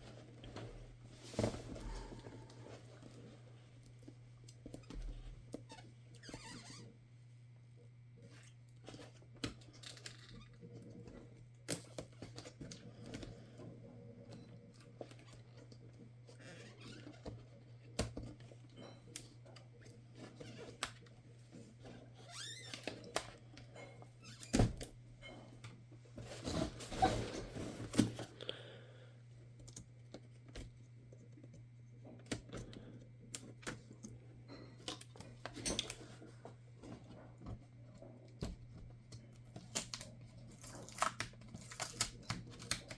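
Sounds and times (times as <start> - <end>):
scraping and rustling: 26.2 - 28.3.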